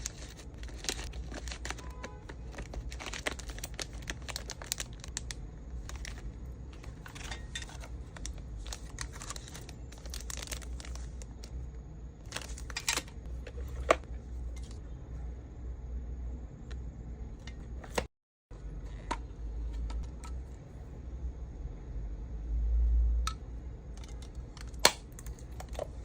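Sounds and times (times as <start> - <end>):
packaging crinkling and rustling: 0.0 - 11.6, 12.2 - 14.8.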